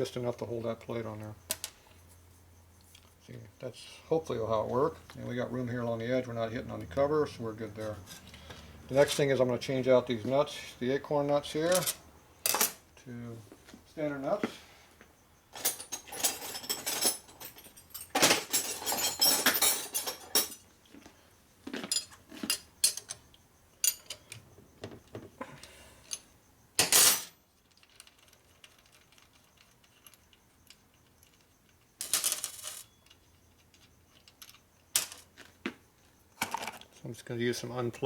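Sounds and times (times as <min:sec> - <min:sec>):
steel nuts clinking and clattering: 0:11.5 - 0:12.8, 0:15.5 - 0:20.7, 0:21.9 - 0:24.4.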